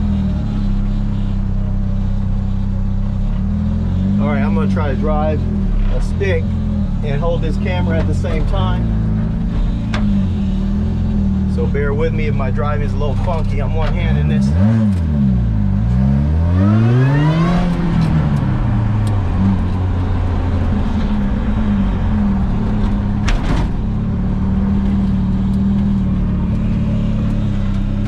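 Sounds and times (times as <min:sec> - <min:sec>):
car engine running: 0:00.0 - 0:28.0
manual gear change: 0:12.9 - 0:15.3, 0:17.2 - 0:28.0.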